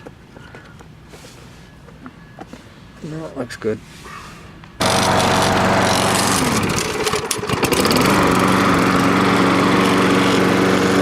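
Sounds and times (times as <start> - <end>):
lawn mower engine running: 4.8 - 11.0.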